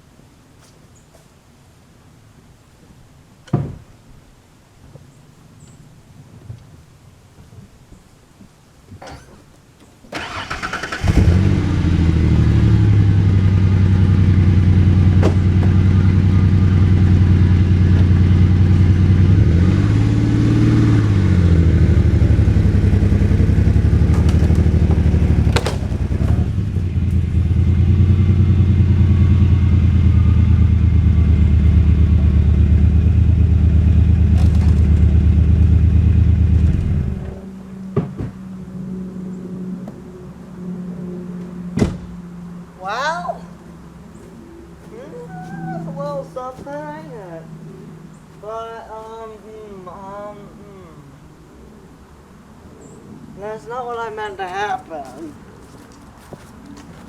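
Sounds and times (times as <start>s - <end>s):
vehicle engine running: 10.2s - 48.4s.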